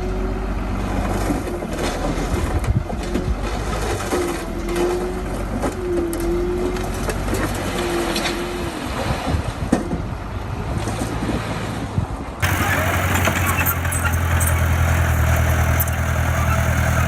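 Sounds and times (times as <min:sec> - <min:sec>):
brief squeal: 0:12.4 - 0:14.9
bulldozer diesel engine running: 0:12.4 - 0:17.0
track clanks and knocks: 0:12.4 - 0:17.0.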